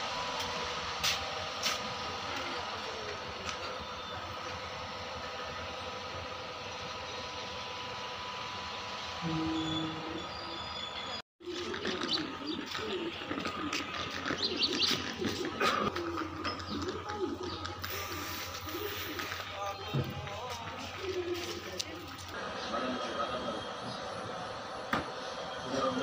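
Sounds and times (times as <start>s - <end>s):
birds calling: 8.6s - 24.2s
low two-note tone: 9.2s - 10.5s.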